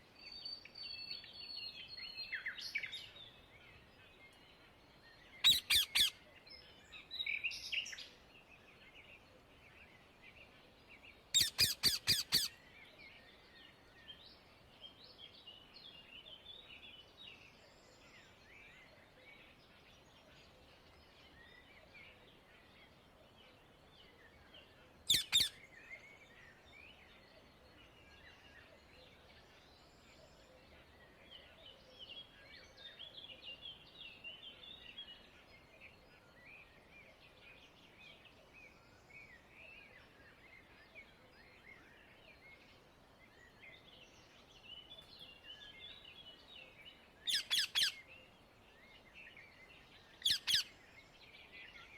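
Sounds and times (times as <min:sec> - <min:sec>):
birds twittering and chirping: 0:00.2 - 0:51.9
parakeet shrill call: 0:05.4 - 0:06.2, 0:11.4 - 0:12.5, 0:25.1 - 0:25.5, 0:47.3 - 0:48.0, 0:50.2 - 0:50.7.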